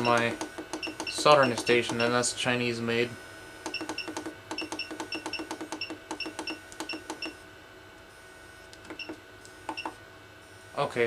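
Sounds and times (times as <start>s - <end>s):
button clicks with beeps: 0.0s - 2.2s, 3.7s - 7.4s.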